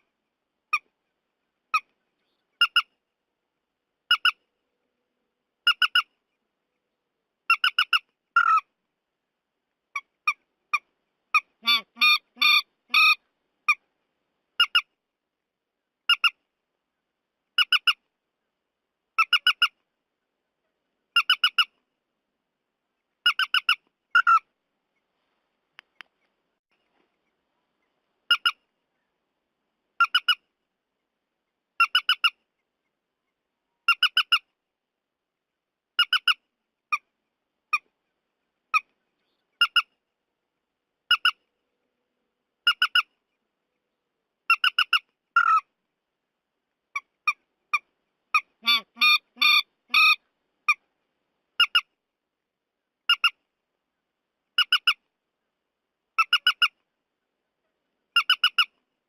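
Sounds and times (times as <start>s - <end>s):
harsh squawking bird calls: 48.4s - 50.8s.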